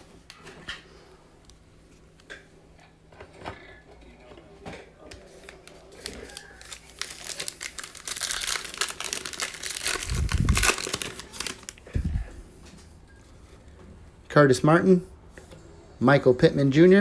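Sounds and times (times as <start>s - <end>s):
plastic wrapper tearing and crinkling: 5.4s - 11.9s.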